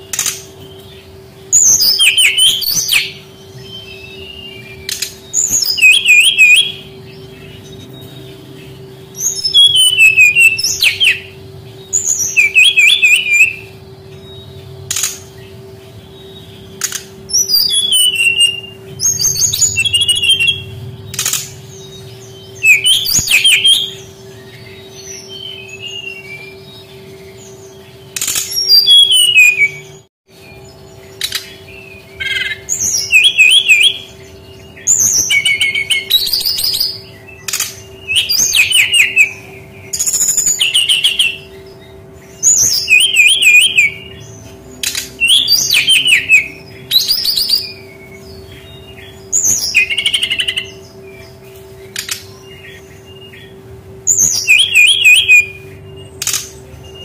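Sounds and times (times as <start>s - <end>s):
low hum: 0.0s - 43.0s
bird warbling song: 0.0s - 57.0s.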